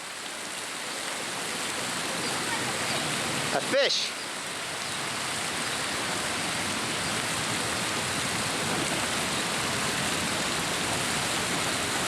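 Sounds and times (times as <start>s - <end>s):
falling water rushing: 0.0s - 12.0s.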